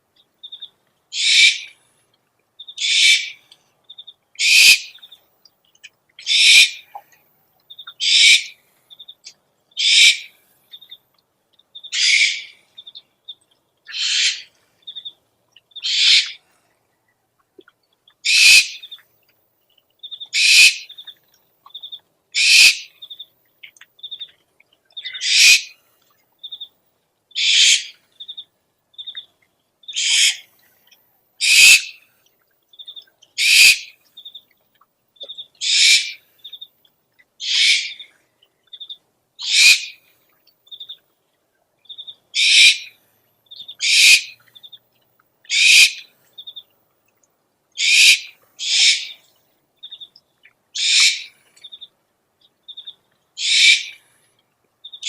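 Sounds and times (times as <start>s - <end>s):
owl screech calls: 1.1s - 1.7s, 2.8s - 3.4s, 4.4s - 5.0s, 6.2s - 6.8s, 8.0s - 8.6s, 9.8s - 10.3s, 11.9s - 12.6s, 13.9s - 14.5s, 15.8s - 16.4s, 18.2s - 18.9s, 20.4s - 20.9s, 22.4s - 22.9s, 25.0s - 25.8s, 27.4s - 28.0s, 29.9s - 30.5s, 31.4s - 32.0s, 33.4s - 33.9s, 35.6s - 36.2s, 37.4s - 38.1s, 39.4s - 40.0s, 42.4s - 43.0s, 43.8s - 44.4s, 45.5s - 46.1s, 47.8s - 49.2s, 50.8s - 51.4s, 53.4s - 54.0s.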